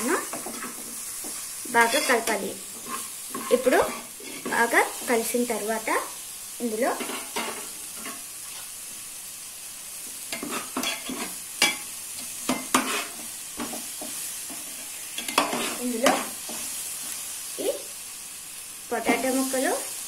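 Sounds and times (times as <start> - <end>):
masala sizzling in a pot: 0.0 - 20.0
metal ladle scraping and stirring: 2.8 - 4.5.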